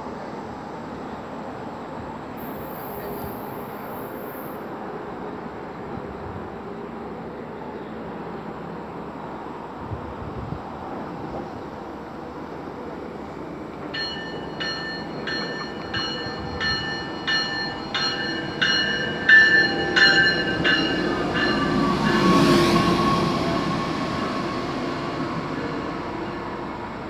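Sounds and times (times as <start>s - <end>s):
diesel railcar engine and wheels: 0.0s - 27.0s
falling whine of slowing train: 0.0s - 27.0s
train warning bell ringing: 13.8s - 26.8s.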